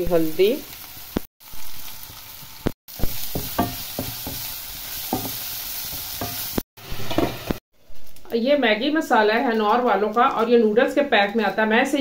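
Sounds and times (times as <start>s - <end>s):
food sizzling in oil: 0.0s - 12.0s
spatula tapping a pan: 3.0s - 6.5s.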